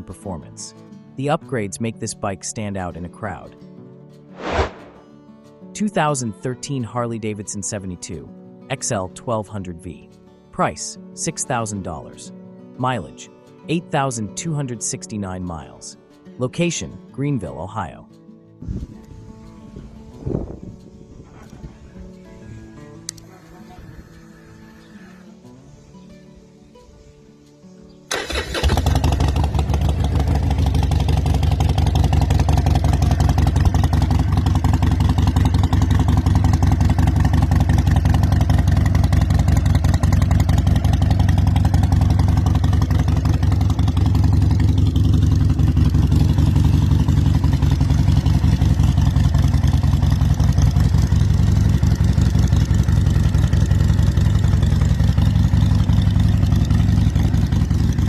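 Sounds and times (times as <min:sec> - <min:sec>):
motorcycle engine running: 0:28.1 - 0:58.0.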